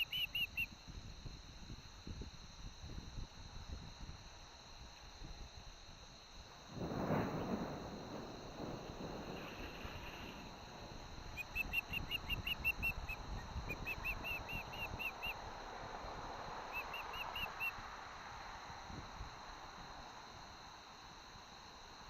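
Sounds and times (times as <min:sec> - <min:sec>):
osprey whistled chirps: 0:00.0 - 0:00.7, 0:11.2 - 0:15.4, 0:16.7 - 0:17.8
wind buffeting microphone: 0:06.4 - 0:16.3.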